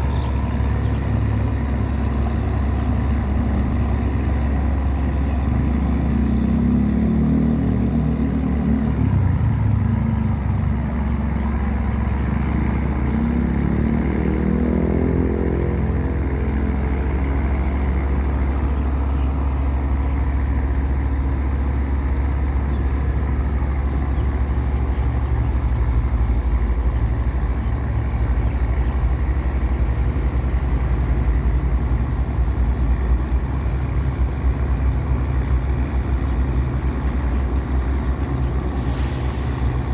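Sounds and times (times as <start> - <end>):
boat engine rumbling: 0.0 - 39.9
higher engine note: 4.6 - 25.5.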